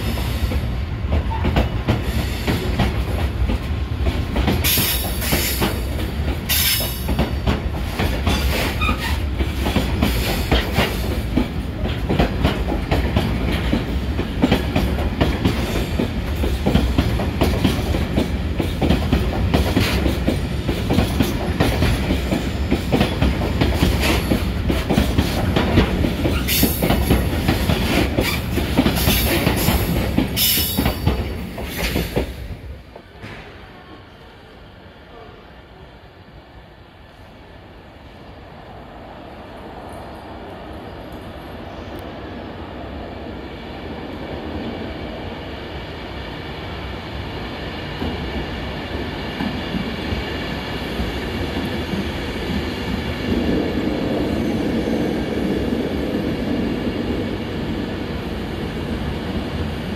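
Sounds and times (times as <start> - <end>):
train wheels clattering over rail joints: 0.1 - 32.4.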